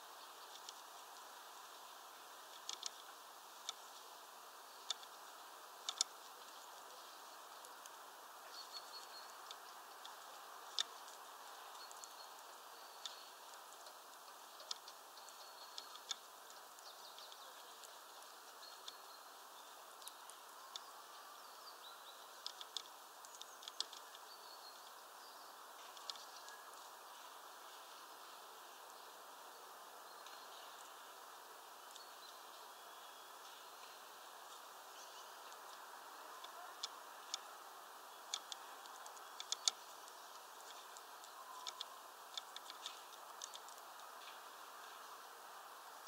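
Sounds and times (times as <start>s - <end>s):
steady hiss: 0.0s - 46.0s
sharp ticks: 2.5s - 3.9s, 5.8s - 6.2s, 13.0s - 19.1s, 22.4s - 25.0s, 38.1s - 45.0s
faint high bird calls: 5.8s - 31.2s, 31.8s - 45.4s.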